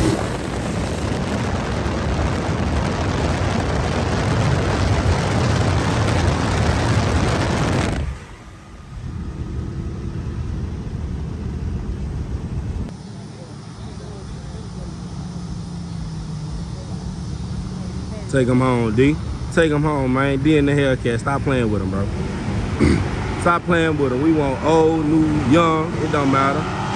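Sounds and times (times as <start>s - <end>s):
car engine at full throttle: 0.0s - 12.9s, 22.1s - 26.9s.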